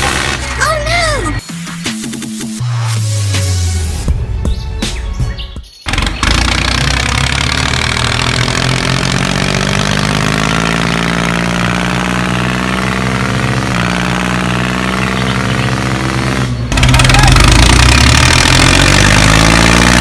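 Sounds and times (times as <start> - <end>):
engine idling: 5.9 - 19.9.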